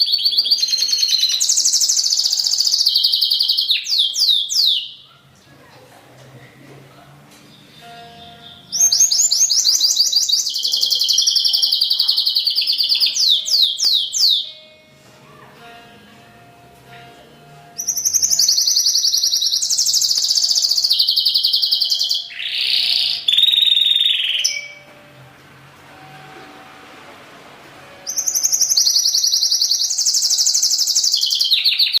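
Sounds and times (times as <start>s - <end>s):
bird trilling and twittering: 0.0s - 5.4s, 7.5s - 14.7s, 17.8s - 24.9s, 28.0s - 32.0s.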